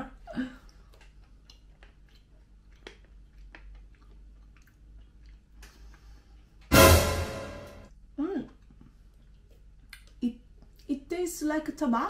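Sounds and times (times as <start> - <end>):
person chewing gum: 0.0 - 6.6, 8.5 - 10.9.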